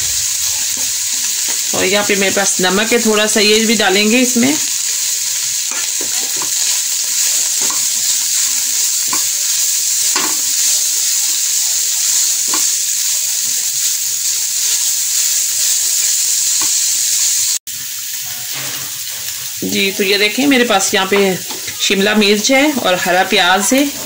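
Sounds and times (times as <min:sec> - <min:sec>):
chicken sizzling in oil: 0:00.0 - 0:24.0
spatula scraping pan: 0:05.6 - 0:10.8.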